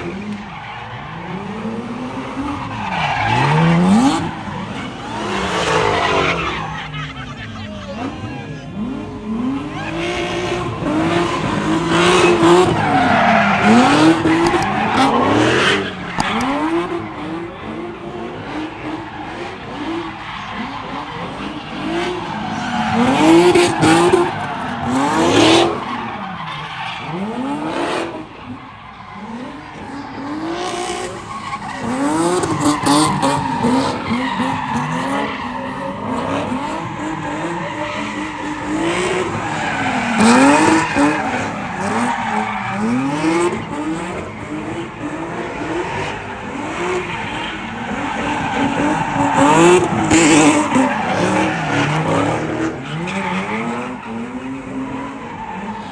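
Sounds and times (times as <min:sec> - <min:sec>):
car engine revving: 0:00.0 - 0:55.9
tyres squealing: 0:28.5 - 0:54.0.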